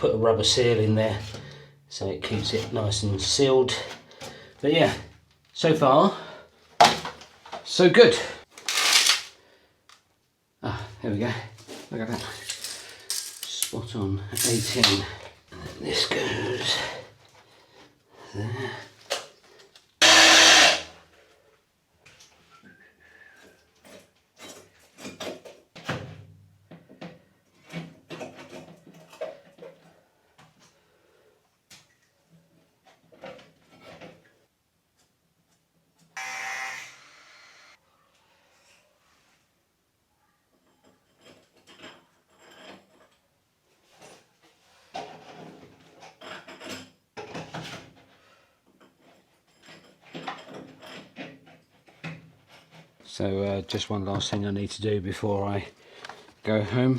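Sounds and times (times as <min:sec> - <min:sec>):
pipes scraping and knocking: 0:11.6 - 0:17.3.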